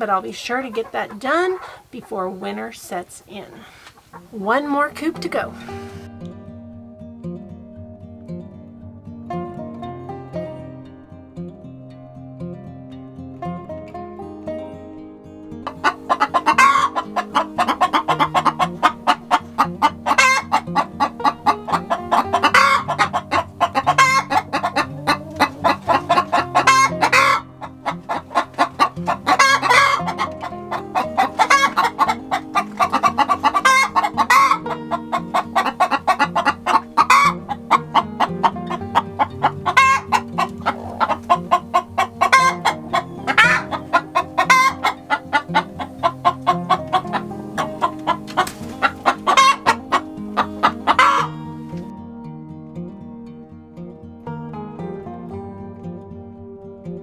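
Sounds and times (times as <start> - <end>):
chickens clucking: 0.0 - 6.1, 15.6 - 51.9
background music with bass: 5.3 - 53.0.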